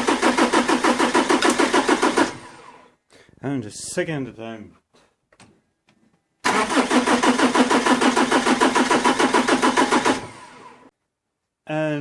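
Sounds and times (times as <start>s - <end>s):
starter motor cranking diesel engine: 0.0s - 2.8s, 6.4s - 10.9s.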